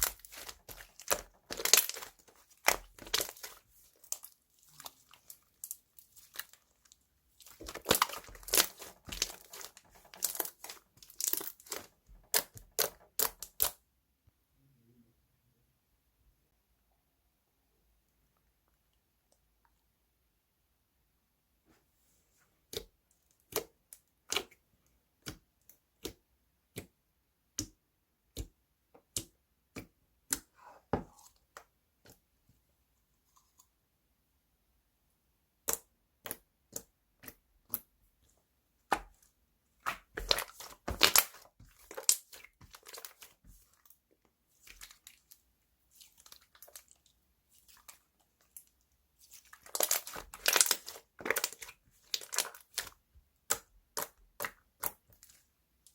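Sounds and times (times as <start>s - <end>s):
slime crackling and crunching: 0.0s - 13.8s, 39.8s - 44.0s, 44.6s - 55.4s.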